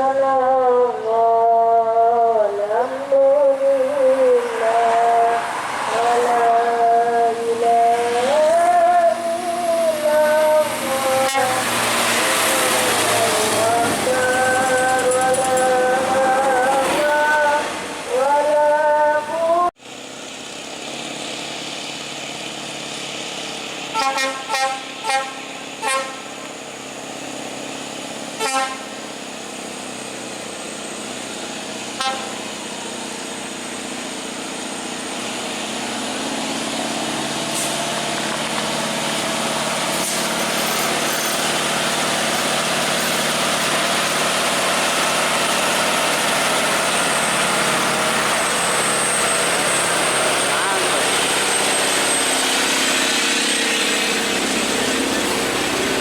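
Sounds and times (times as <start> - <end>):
approaching vehicle engine and tyres: 0.0 - 56.0
traffic noise: 0.0 - 56.0
vehicle horn tooting: 11.2 - 11.7, 23.9 - 26.4, 28.4 - 28.9, 32.0 - 32.5.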